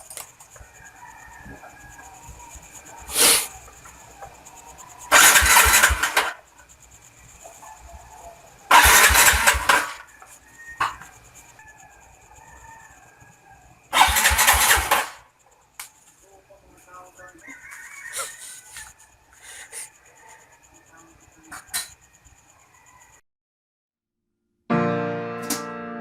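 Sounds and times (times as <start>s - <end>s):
brief hiss: 3.1s - 3.5s
motorcycle engine cranking: 5.1s - 6.5s, 8.7s - 10.0s, 14.0s - 15.2s.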